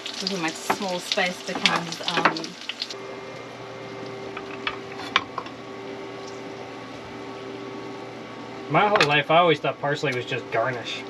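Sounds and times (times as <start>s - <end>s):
vegetables sizzling in a frying pan: 0.0s - 3.0s
steady hum: 0.0s - 11.0s.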